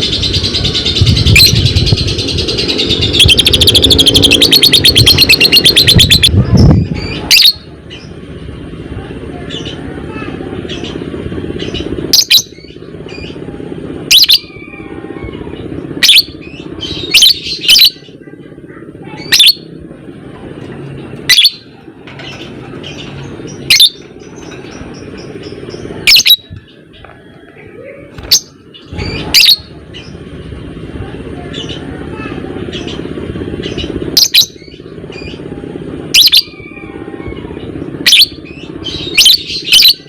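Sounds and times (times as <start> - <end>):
low background hum: 0.0 - 40.0
lovebird shrill calls: 2.6 - 6.4.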